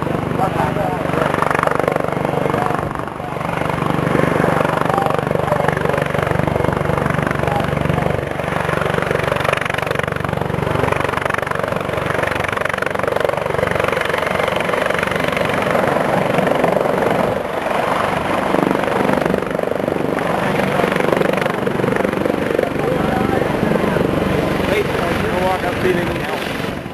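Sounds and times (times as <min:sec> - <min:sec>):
loud steady engine noise: 0:00.0 - 0:26.9.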